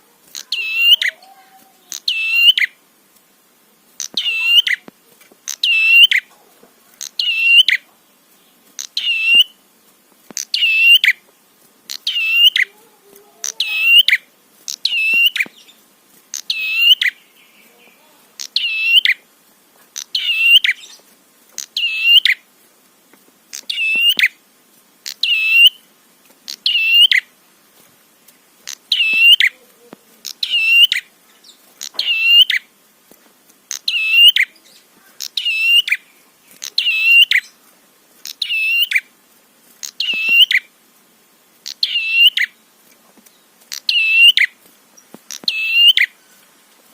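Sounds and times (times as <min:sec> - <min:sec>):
bird call: 0:00.3 - 0:02.8, 0:04.0 - 0:04.9, 0:05.5 - 0:06.4, 0:07.0 - 0:07.9, 0:08.8 - 0:09.6, 0:10.4 - 0:11.2, 0:11.9 - 0:12.8, 0:13.4 - 0:19.2, 0:20.0 - 0:21.0, 0:21.6 - 0:22.4, 0:23.5 - 0:24.4, 0:25.0 - 0:25.8, 0:26.5 - 0:27.3, 0:28.7 - 0:29.6, 0:30.2 - 0:32.7, 0:33.7 - 0:37.6, 0:38.3 - 0:39.1, 0:39.8 - 0:40.7, 0:41.6 - 0:42.6, 0:43.7 - 0:44.6, 0:45.3 - 0:46.3.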